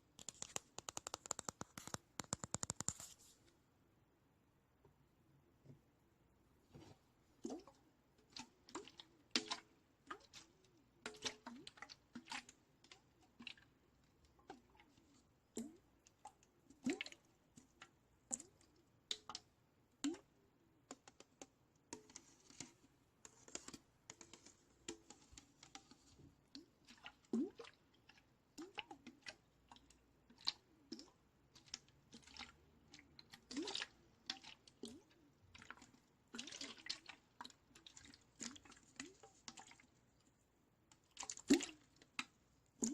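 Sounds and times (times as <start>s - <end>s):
small taps and clicks: 0.1s - 3.2s, 20.8s - 26.1s
water drips and plinks: 23.4s - 40.0s.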